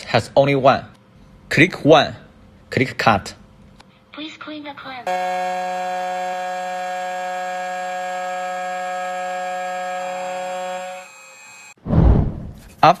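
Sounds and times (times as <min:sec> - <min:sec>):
key cutting machine whine: 0:05.1 - 0:11.8.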